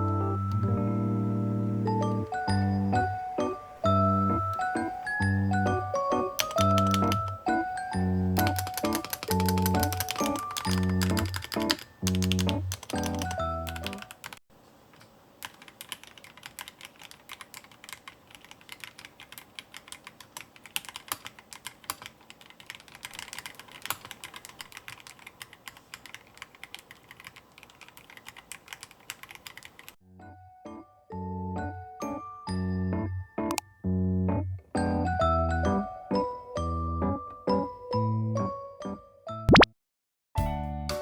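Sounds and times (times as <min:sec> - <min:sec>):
background music: 0:00.0 - 0:14.0, 0:30.1 - 0:39.6, 0:40.4 - 0:41.0
mechanical keyboard typing: 0:06.2 - 0:07.4, 0:08.4 - 0:14.4, 0:15.4 - 0:30.0.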